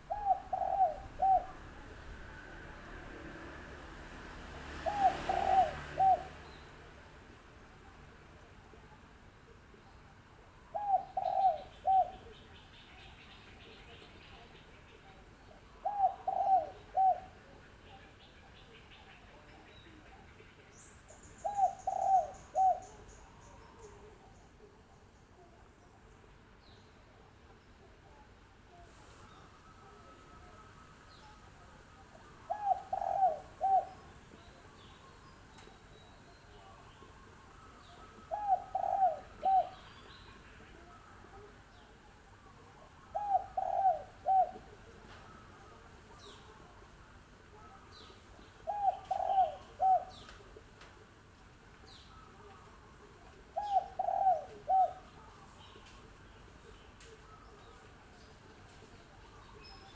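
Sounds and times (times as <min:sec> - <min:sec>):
dove cooing: 0:00.0 - 0:02.6, 0:04.5 - 0:06.6, 0:10.7 - 0:12.5, 0:15.8 - 0:17.5, 0:21.2 - 0:24.0, 0:29.7 - 0:35.1, 0:36.6 - 0:46.8, 0:47.5 - 0:51.1, 0:51.9 - 0:59.9.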